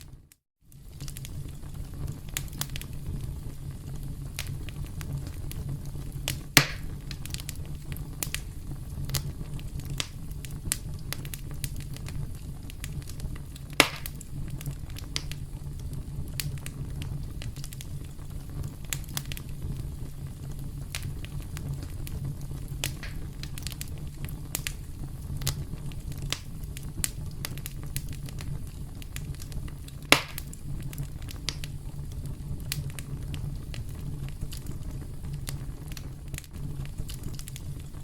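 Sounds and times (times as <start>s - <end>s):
campfire flames rumbling: 0.0s - 38.0s
fire crackling: 0.0s - 38.0s
loud sharp pops: 6.3s - 7.4s, 13.7s - 14.2s, 22.8s - 23.6s, 30.1s - 30.6s.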